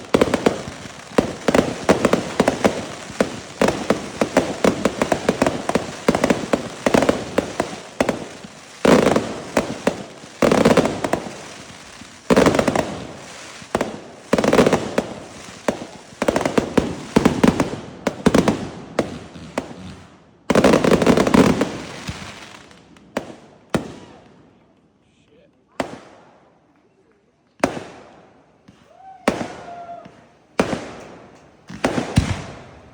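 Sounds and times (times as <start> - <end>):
fireworks bursting and crackling: 0.0 - 24.7, 25.7 - 26.8, 27.6 - 32.9.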